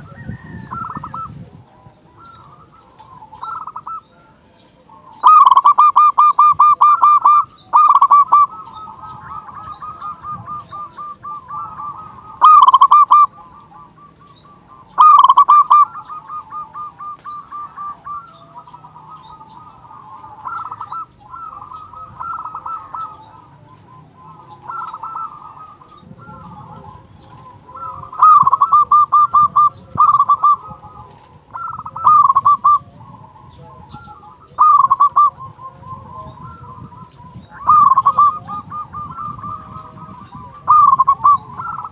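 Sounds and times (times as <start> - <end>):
doves cooing: 0.0 - 41.9
faint dove calls: 0.0 - 41.9.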